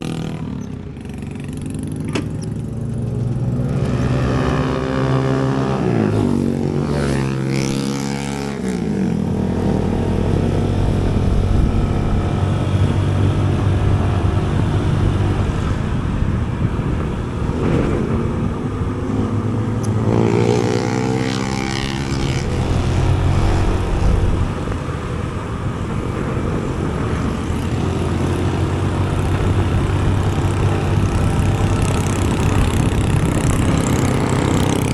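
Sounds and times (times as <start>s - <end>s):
road noise: 0.0s - 34.9s
vehicle engine running: 0.0s - 34.9s.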